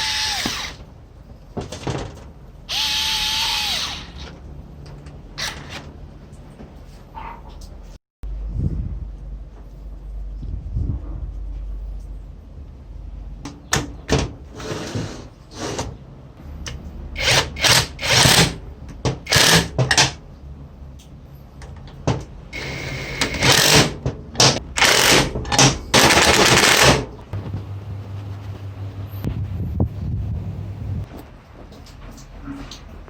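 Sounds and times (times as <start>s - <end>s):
low hum: 8.2s - 13.5s
loud mechanical bursts: 17.2s - 18.6s, 19.2s - 20.2s, 22.6s - 27.1s.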